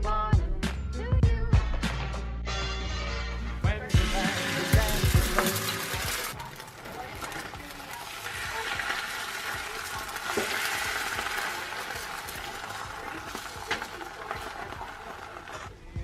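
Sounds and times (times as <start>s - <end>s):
egg sizzling in a pan: 3.9s - 15.8s
utensil clicking in pan: 4.3s - 15.7s.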